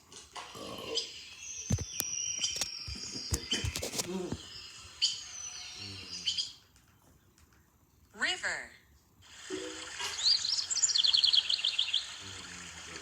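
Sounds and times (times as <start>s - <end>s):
birds chirping and trilling: 0.5s - 6.6s, 10.1s - 12.4s.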